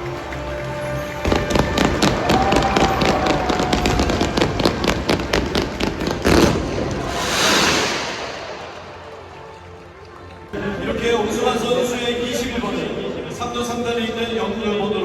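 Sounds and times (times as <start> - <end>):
music: 0.0 - 13.9
pyrotechnic bangs and crackles: 1.2 - 9.4.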